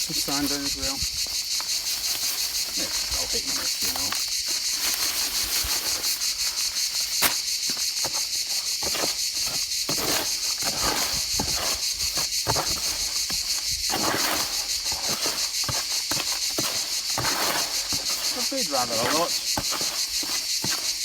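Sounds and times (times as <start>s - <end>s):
insect chirring: 0.0s - 21.0s
wet mortar being mixed: 7.1s - 21.0s.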